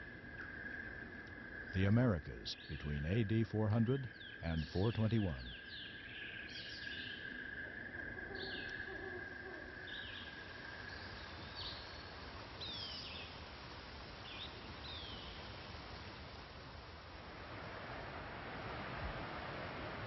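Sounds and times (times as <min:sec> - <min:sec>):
birds chirping: 0:01.8 - 0:07.4, 0:08.2 - 0:09.2
outdoor hiss: 0:09.7 - 0:20.0.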